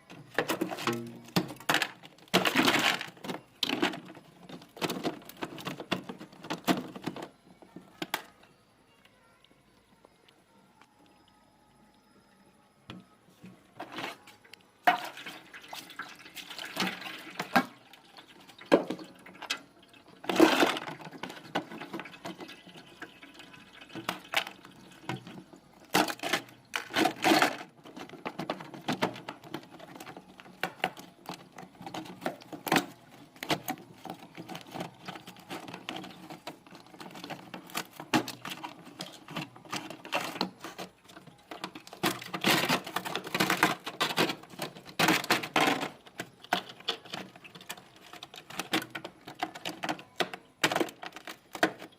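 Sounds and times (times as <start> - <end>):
water and ice splashing: 14.8 - 29.6.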